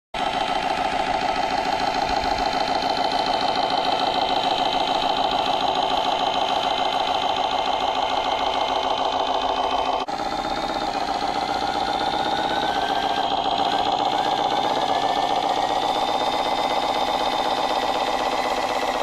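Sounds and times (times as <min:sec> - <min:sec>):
rc machine mechanical chatter: 0:00.2 - 0:19.0.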